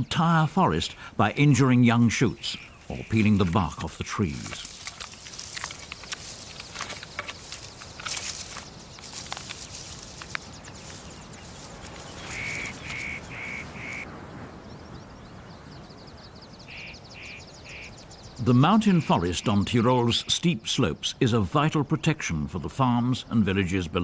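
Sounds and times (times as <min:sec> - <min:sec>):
light crackles and rustles: 0:02.6 - 0:14.0
bird trilling: 0:04.6 - 0:14.1, 0:16.6 - 0:18.0
bird calling short notes: 0:12.1 - 0:14.0.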